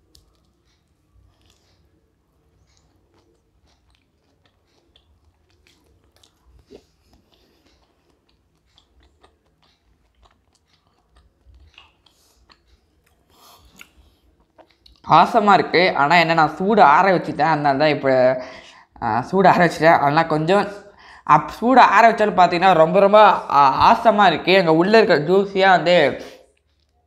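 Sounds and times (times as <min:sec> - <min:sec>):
close-up chewing: 0:00.0 - 0:15.1, 0:26.4 - 0:27.0
small mouth clicks: 0:02.6 - 0:15.1.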